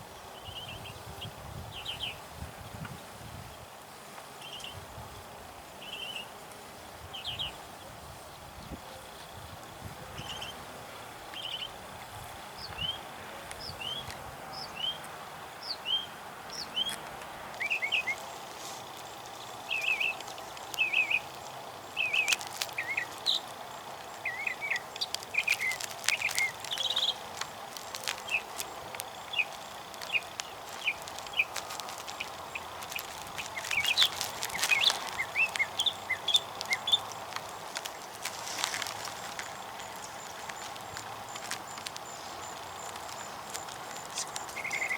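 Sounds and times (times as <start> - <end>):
small birds chirping: 8.6 - 10.6, 11.3 - 44.9.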